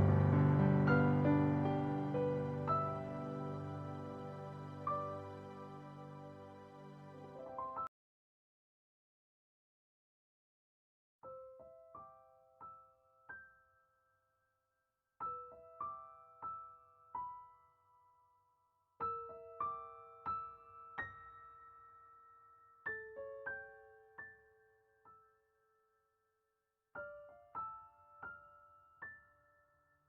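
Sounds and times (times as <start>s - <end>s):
soft slow piano music: 0.0s - 7.9s, 11.2s - 14.0s, 15.2s - 18.3s, 19.0s - 25.8s, 27.0s - 30.0s.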